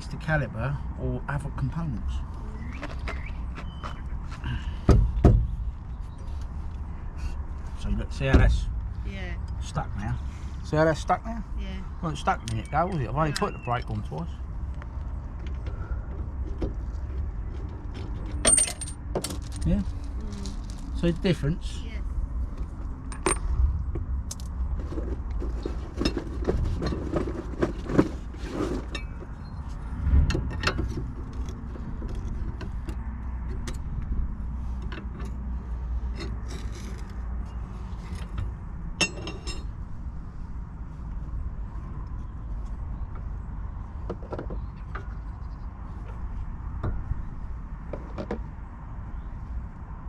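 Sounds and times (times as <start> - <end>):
metal tools clinking and tapping: 18.3 - 19.8, 39.0 - 39.7.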